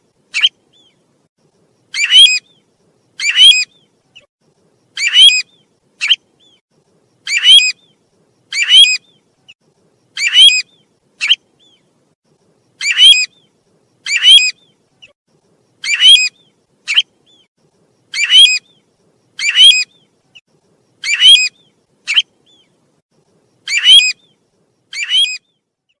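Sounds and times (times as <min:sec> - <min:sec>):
harsh chattering bird calls: 0:07.2 - 0:11.8, 0:12.7 - 0:20.4, 0:21.0 - 0:22.8, 0:23.6 - 0:25.6.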